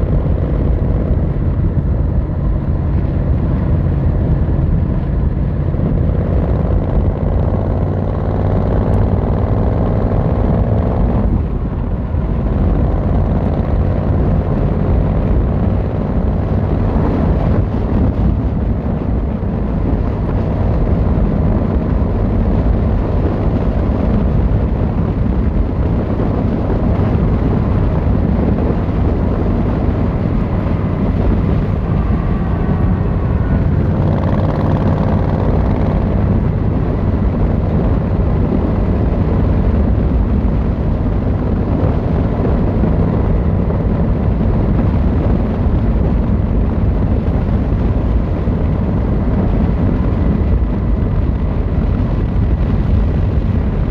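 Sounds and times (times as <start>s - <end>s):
motorcycle engine and exhaust: 0.0s - 53.9s
higher tone rising and falling: 30.7s - 36.0s.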